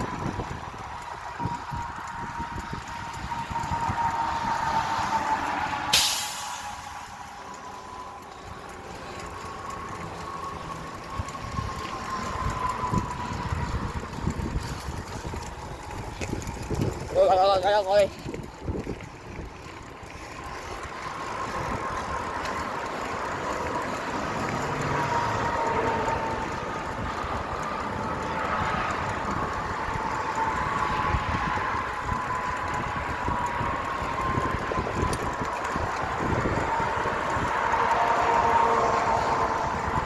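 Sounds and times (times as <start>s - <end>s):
bicycle road noise: 0.0s - 40.0s
rushing wind: 0.0s - 40.0s.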